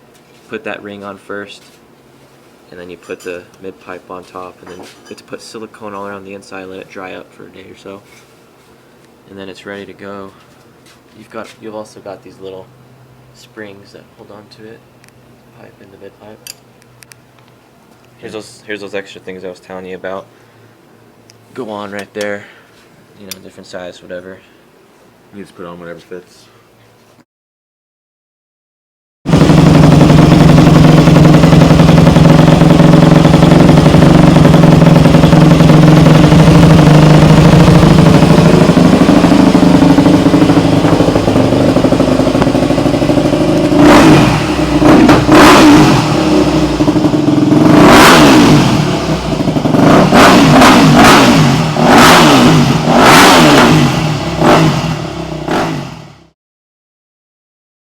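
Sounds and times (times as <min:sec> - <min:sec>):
motorcycle engine idling and revving: 0:29.3 - 0:56.4.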